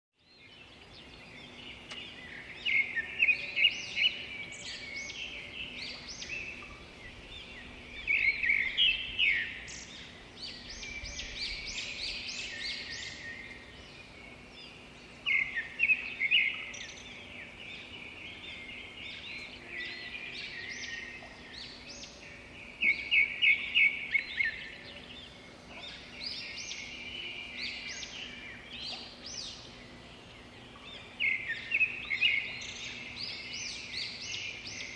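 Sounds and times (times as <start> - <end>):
birds chirping and singing: 0.2 - 34.9.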